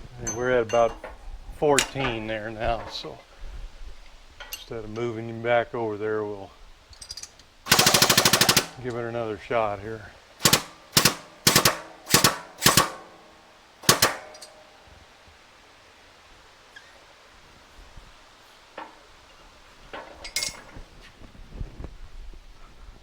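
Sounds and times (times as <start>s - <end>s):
sharp metallic cracks: 7.0s - 9.0s, 10.4s - 14.8s.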